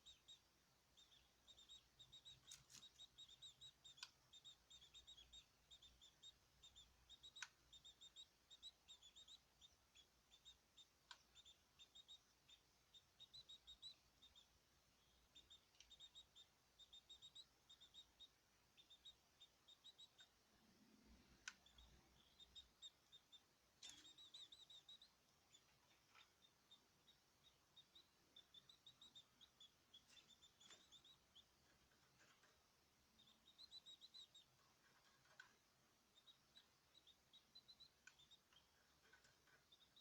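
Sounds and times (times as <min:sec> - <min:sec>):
small birds chirping: 0:00.0 - 0:40.0
sharp clicks: 0:21.2 - 0:22.0.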